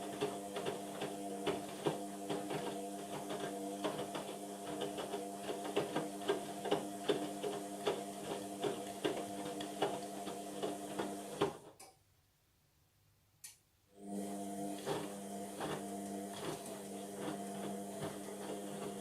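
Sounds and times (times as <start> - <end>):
washing machine motor humming: 0.0 - 11.7, 14.0 - 19.0
clattering of tumbling laundry: 14.7 - 19.0.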